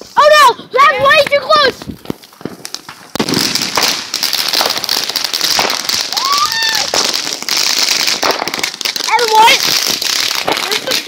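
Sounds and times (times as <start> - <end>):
firework crackling pops: 0.0 - 11.0
person crying out: 6.2 - 6.9.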